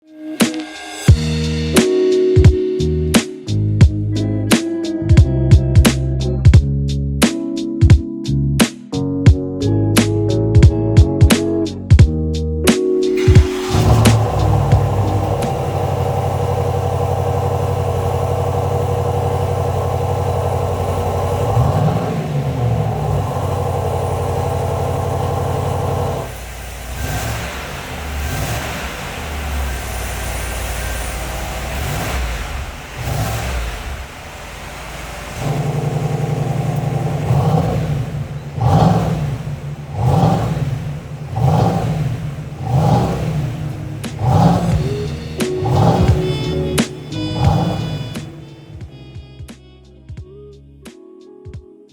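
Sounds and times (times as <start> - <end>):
music: 0.0 - 15.5, 44.3 - 51.9
engine revving: 12.8 - 49.0
car engine idling: 12.9 - 49.0.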